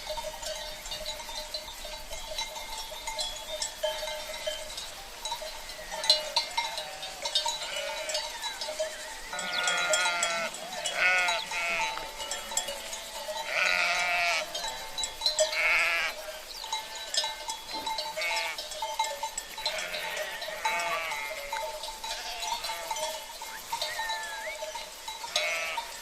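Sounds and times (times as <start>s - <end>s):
livestock bells clinking: 0.0s - 26.0s
sheep bleating: 6.2s - 8.4s, 9.3s - 17.2s, 18.2s - 18.6s, 19.4s - 23.3s, 25.3s - 26.0s.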